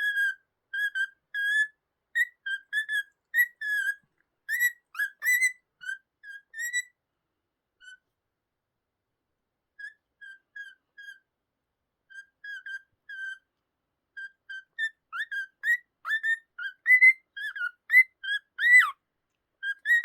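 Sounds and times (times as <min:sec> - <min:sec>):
cockatiel whistling: 0:00.0 - 0:06.9, 0:14.2 - 0:19.0, 0:19.6 - 0:20.0.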